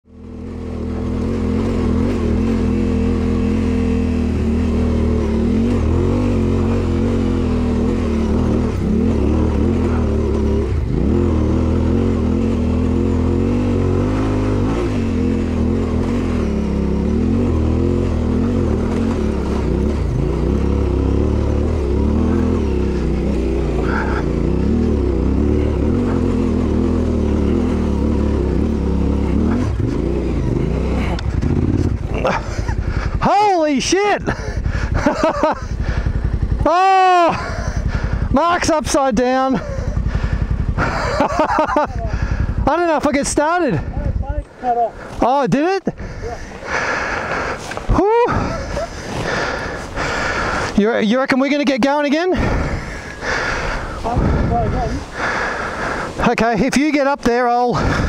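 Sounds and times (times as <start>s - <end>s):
motorcycle engine under load: 0.0s - 58.0s
tyres on dirt: 0.0s - 58.0s
wind noise: 53.9s - 55.3s.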